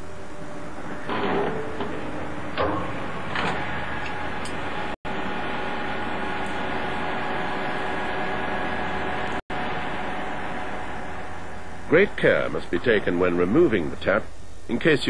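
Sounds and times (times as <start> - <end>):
lathe machine hum: 0.0 - 12.5.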